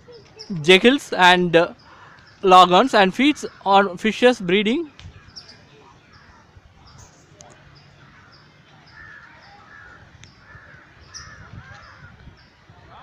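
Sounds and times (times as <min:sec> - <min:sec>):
high bird chirps: 0:05.2 - 0:12.6.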